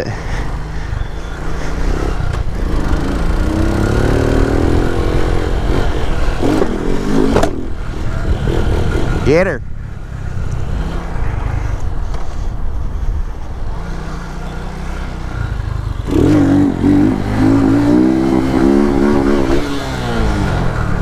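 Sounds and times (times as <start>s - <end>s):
small motorcycle engine revving: 0.6s - 9.4s, 13.7s - 21.0s.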